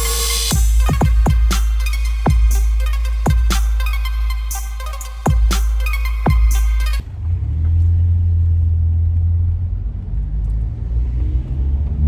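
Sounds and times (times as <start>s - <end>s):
intro music: 0.0s - 7.0s.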